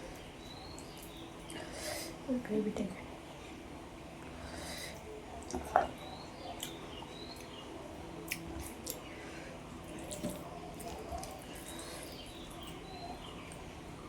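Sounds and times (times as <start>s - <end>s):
person chewing wetly: 8.2s - 9.1s, 9.7s - 12.9s.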